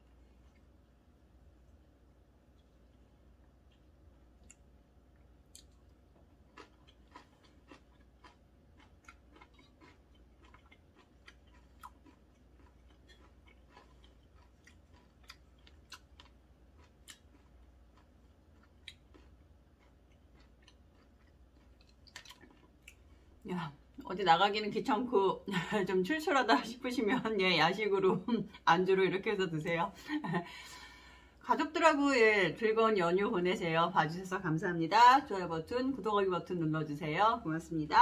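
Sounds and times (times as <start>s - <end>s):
faint chewing mouth clicks: 2.5s - 23.2s.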